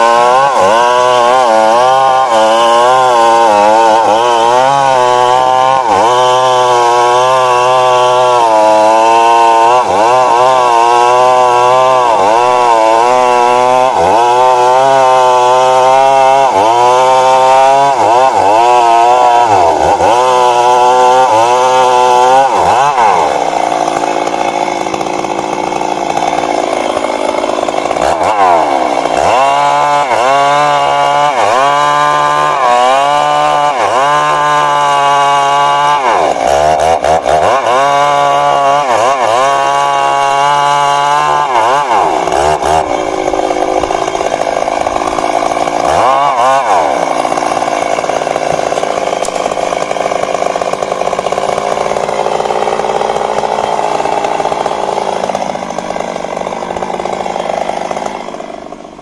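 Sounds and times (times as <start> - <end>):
chainsaw cutting tree trunk: 0.0 - 59.0.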